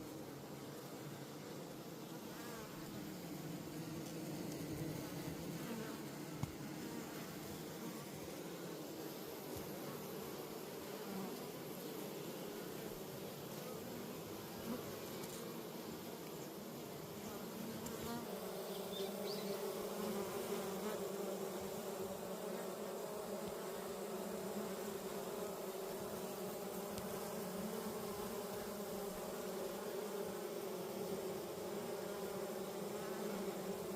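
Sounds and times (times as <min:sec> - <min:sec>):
honeybees buzzing at a hive: 0:00.0 - 0:33.9.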